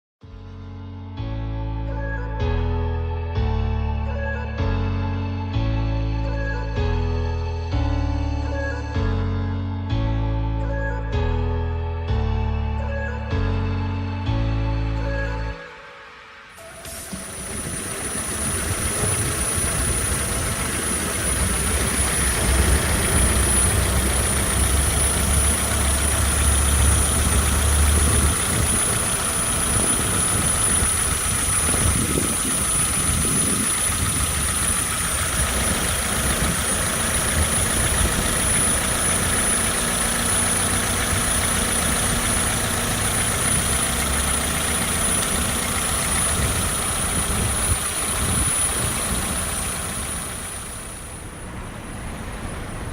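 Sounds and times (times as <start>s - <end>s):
thin high whine: 16.5s - 51.5s
car engine rumbling: 16.6s - 52.9s.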